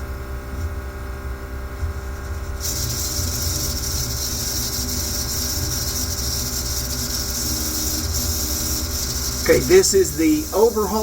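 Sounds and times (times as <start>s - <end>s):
low machinery drone: 2.6s - 11.0s.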